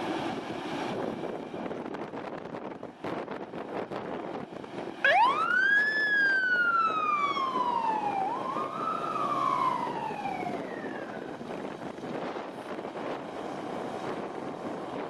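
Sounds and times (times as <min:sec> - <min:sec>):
road traffic: 0:00.0 - 0:15.0
fire truck siren wailing: 0:05.0 - 0:14.7.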